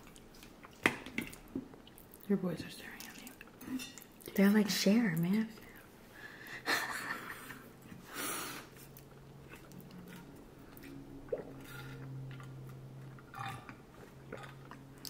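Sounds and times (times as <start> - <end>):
person chewing food: 0.0 - 2.3, 8.6 - 15.0
faint steady hum: 0.0 - 15.0.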